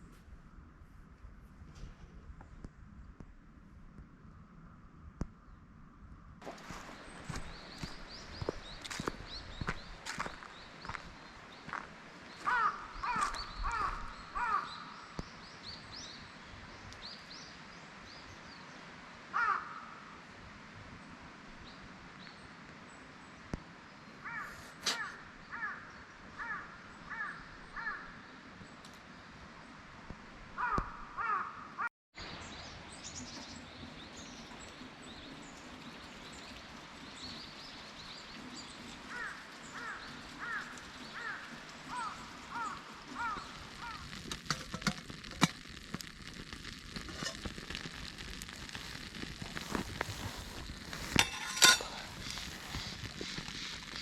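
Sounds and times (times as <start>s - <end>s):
crows cawing: 12.4s - 14.9s, 19.3s - 20.1s, 24.2s - 28.2s, 30.6s - 31.9s, 39.1s - 44.2s
sharp clicks and crackles: 40.5s - 54.0s.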